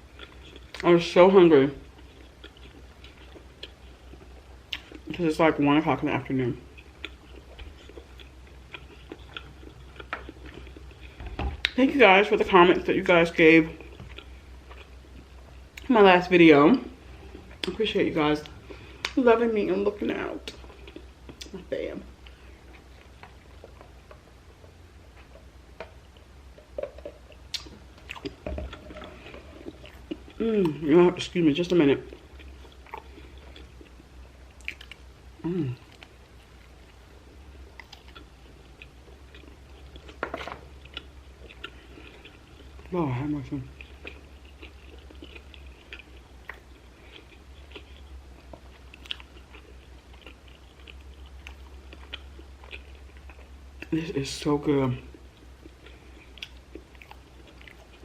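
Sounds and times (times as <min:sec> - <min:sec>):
chewing food: 0:00.0 - 0:16.3, 0:16.9 - 0:54.1, 0:54.7 - 0:58.0
low steady hum: 0:00.0 - 0:58.0
mouth clicks and smacks: 0:26.6 - 0:29.0.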